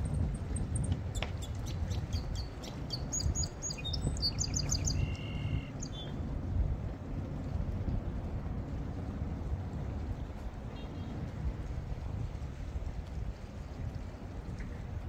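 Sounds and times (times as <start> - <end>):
steady low rumble: 0.0 - 15.0
small birds chirping: 1.2 - 6.2.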